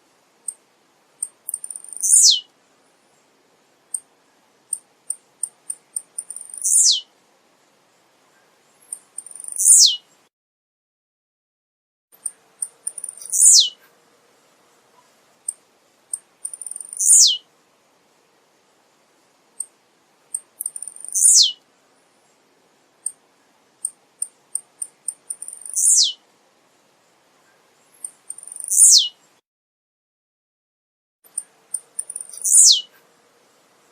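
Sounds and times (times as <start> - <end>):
bird singing downward-sweeping notes: 13.1 - 13.7, 32.3 - 32.8.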